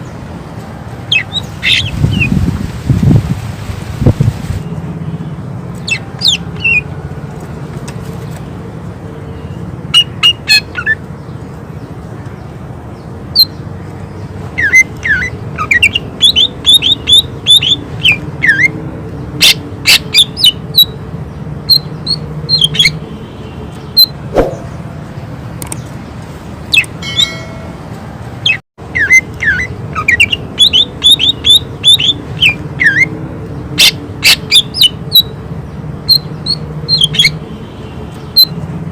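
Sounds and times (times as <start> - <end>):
bird whistling rapid notes: 24.0 - 24.8.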